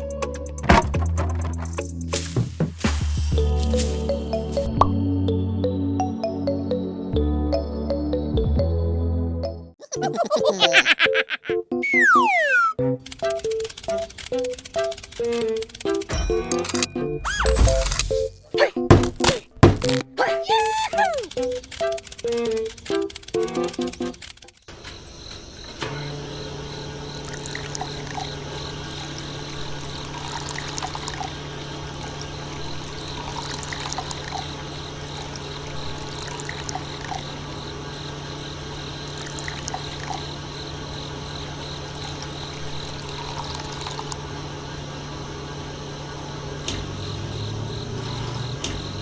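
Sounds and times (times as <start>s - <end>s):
liquid pouring and trickling: 2.1s - 4.9s, 27.2s - 37.6s, 39.0s - 40.4s, 41.6s - 44.2s
small clicks: 13.0s - 16.9s, 21.3s - 24.7s.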